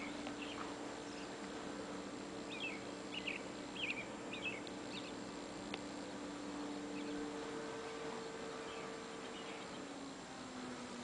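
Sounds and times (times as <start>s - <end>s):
small bird chirping: 0.0s - 1.5s, 2.5s - 5.3s, 5.9s - 7.4s, 8.2s - 10.2s
faint steady hum: 0.0s - 11.0s.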